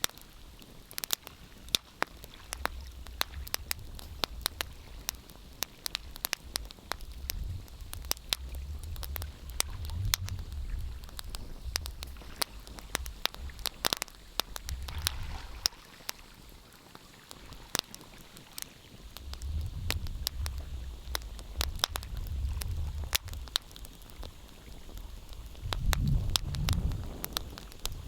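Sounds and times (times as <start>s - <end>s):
wood fire crackling: 0.0s - 28.0s
low rumble: 6.5s - 13.7s, 25.4s - 27.1s.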